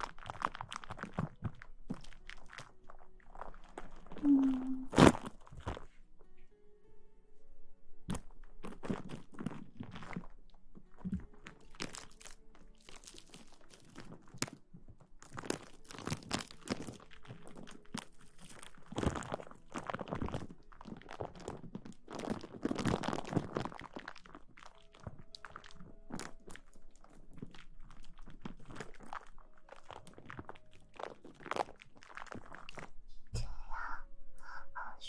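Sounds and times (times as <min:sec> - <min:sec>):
crinkly rustling on microphone: 0:00.0 - 0:06.3, 0:08.1 - 0:33.1.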